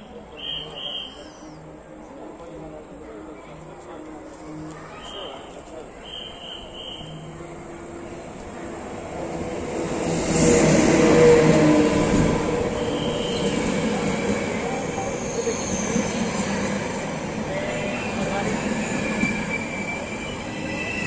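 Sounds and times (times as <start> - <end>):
electric locomotive passing: 0.0 - 21.0
train coaches rolling on rails: 0.0 - 21.0
high wheel squeals: 18.4 - 21.0.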